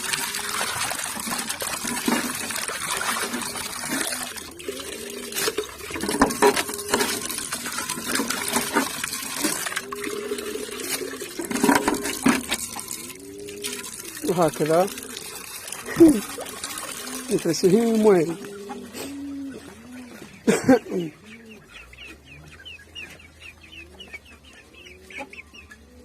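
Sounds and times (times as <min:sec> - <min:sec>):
water running and splashing: 0:00.0 - 0:19.9
chickens calling: 0:00.0 - 0:26.0.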